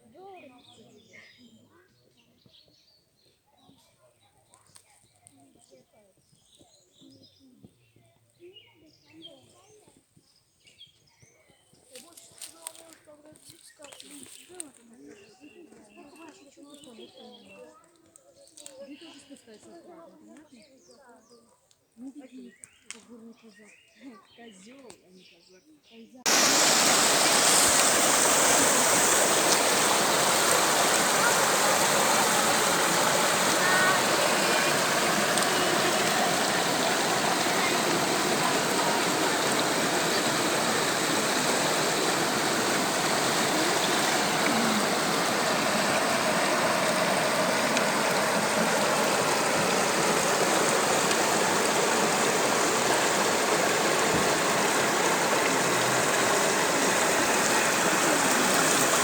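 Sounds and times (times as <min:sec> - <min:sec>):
rushing mountain stream: 0:26.3 - 0:59.0.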